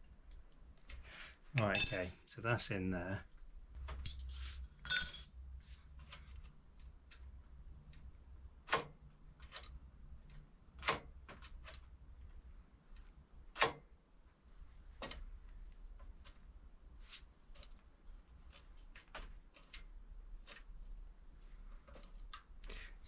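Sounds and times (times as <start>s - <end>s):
metallic clink: 1.6s - 2.8s, 4.1s - 5.4s.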